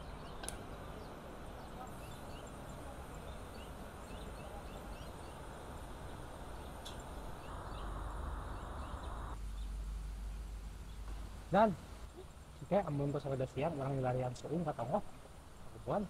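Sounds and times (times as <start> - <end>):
bird chirps: 0.0 - 11.0
steady hiss: 0.0 - 16.0.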